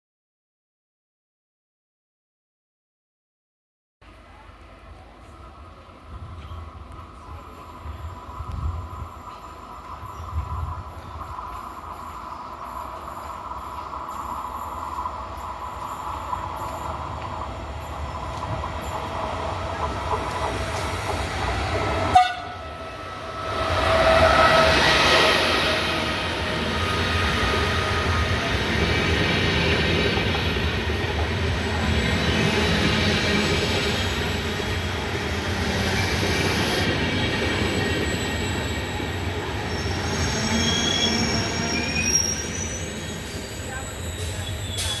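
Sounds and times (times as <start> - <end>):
train running past: 4.1 - 45.0.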